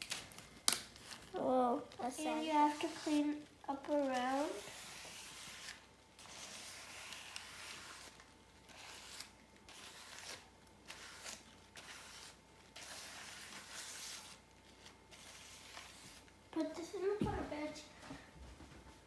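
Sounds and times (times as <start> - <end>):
rustling and crinkling: 0.0 - 4.7, 12.5 - 19.0.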